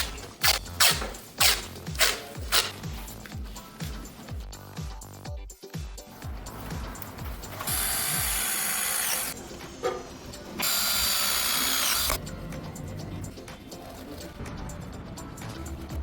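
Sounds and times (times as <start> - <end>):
power tool motor whine: 7.6 - 9.4, 10.6 - 12.2.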